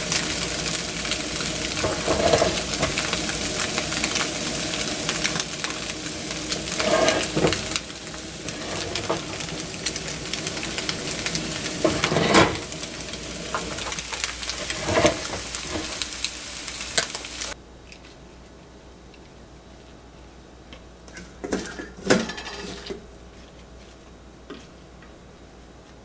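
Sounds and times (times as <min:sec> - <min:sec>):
food sizzling in a frying pan: 0:00.0 - 0:17.6
pan scraping on burner grate: 0:00.0 - 0:17.6, 0:21.1 - 0:23.1.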